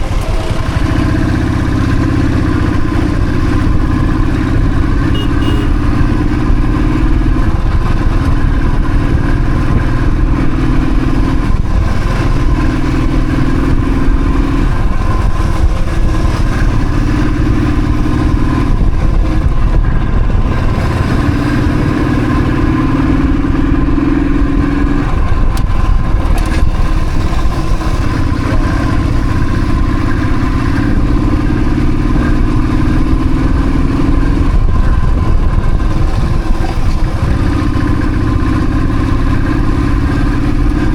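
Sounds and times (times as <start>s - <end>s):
motorcycle engine while riding: 0.0s - 40.9s.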